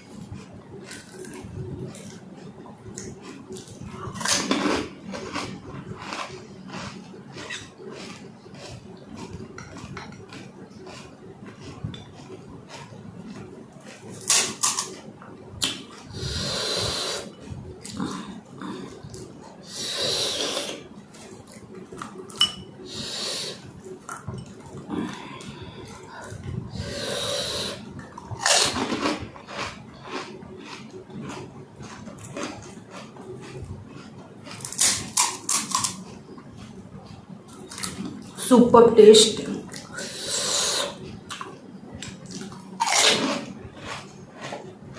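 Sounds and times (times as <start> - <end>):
crunching food in mouth: 0.8 - 22.4, 23.9 - 38.4, 39.7 - 44.9
dishes clinking: 22.3 - 22.8.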